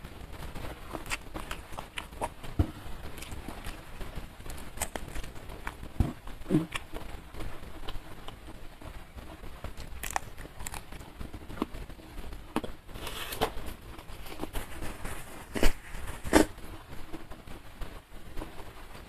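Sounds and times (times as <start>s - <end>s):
chewing crisp crunches: 0.8s - 8.6s, 9.3s - 13.4s.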